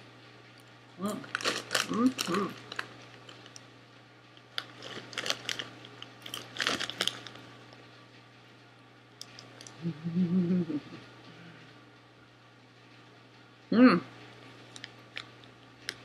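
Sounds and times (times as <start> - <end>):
popcorn being crunched: 0.4 - 7.9, 9.2 - 9.8, 14.6 - 16.0.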